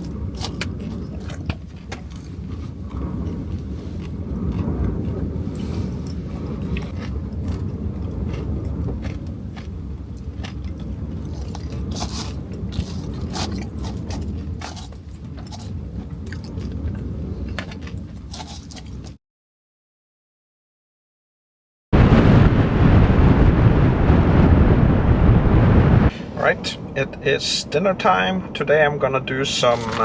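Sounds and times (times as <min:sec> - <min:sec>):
crunchy clicks and crackles: 0:00.0 - 0:19.2, 0:29.5 - 0:30.0
strong wind rumbling: 0:00.0 - 0:19.2, 0:22.0 - 0:30.0.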